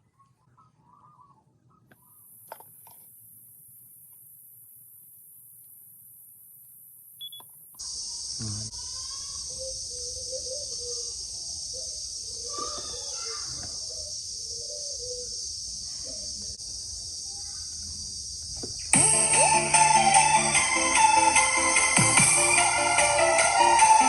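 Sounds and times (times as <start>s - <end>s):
faint muffled voices: 8.4s - 9.6s.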